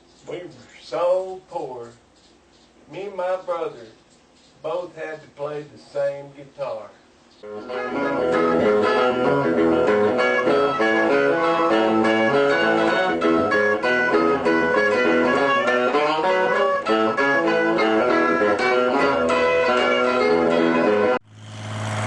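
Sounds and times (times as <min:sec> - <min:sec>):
picked guitar tune: 0:07.4 - 0:21.2.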